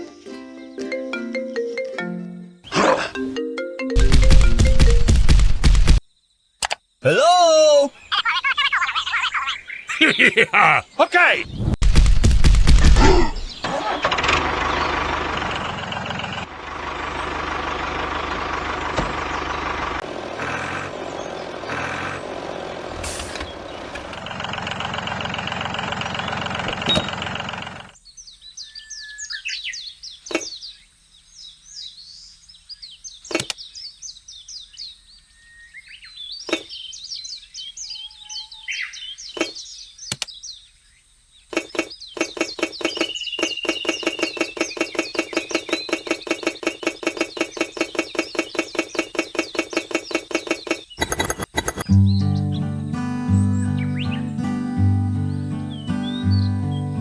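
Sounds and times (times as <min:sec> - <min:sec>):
birds chirping: 0:00.0 - 0:11.7, 0:12.8 - 0:57.0
fast regular ticking: 0:04.0 - 0:06.0, 0:41.6 - 0:51.9
sharp clicks: 0:06.6 - 0:06.8, 0:33.3 - 0:33.6, 0:40.1 - 0:40.3, 0:41.5 - 0:51.9.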